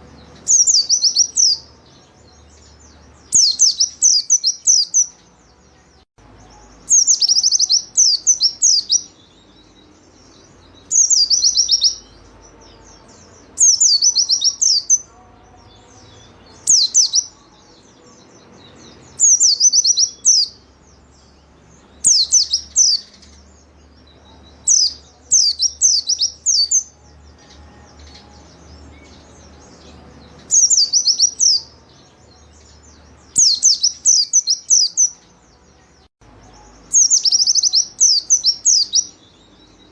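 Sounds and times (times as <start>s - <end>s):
faint low background noise: 0.0s - 39.9s.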